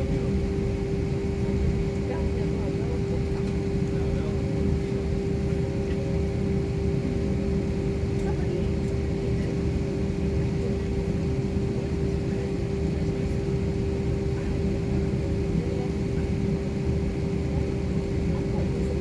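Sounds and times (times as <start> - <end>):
airliner cabin engine drone: 0.0 - 19.0.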